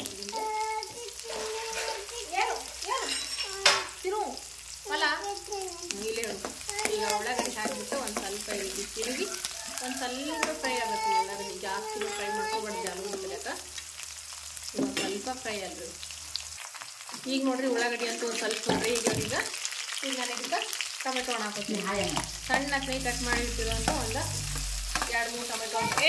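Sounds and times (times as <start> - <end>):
onions sizzling in oil: 0.0 - 26.0
spoon scraping against a pan: 0.9 - 3.9.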